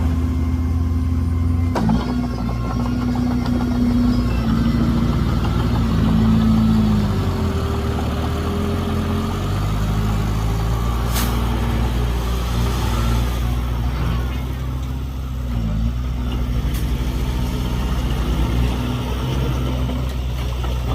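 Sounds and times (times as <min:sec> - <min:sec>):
heavy diesel engine running: 0:00.0 - 0:20.9.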